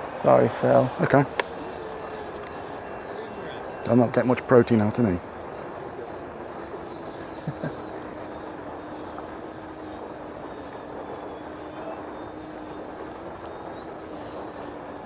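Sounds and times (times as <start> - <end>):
electric ducted fan humming: 0.0 - 15.0.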